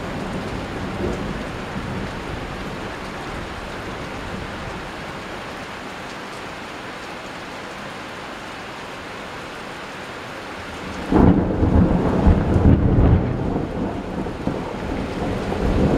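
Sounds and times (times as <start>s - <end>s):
steady rain falling: 0.0s - 15.9s
thunder rumbling: 10.9s - 15.9s.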